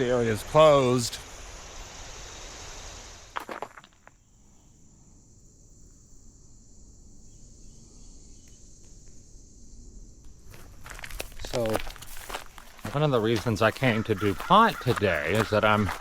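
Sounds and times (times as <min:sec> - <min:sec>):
crickets and insects chirping: 0:00.0 - 0:16.0
footsteps: 0:10.3 - 0:16.0.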